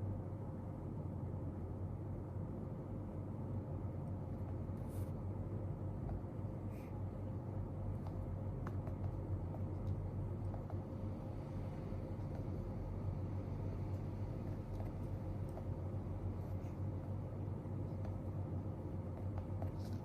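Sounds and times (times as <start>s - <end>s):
faint constant tone: 0.0s - 20.0s
low room hum: 0.0s - 20.0s.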